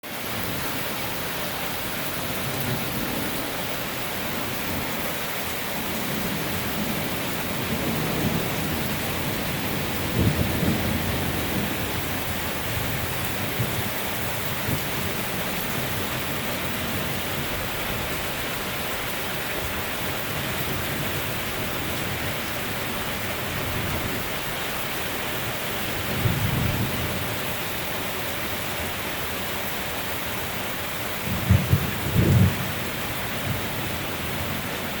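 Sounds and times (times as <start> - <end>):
heavy rain: 0.0 - 35.0
thunder rumbling: 1.8 - 18.4, 31.2 - 35.0.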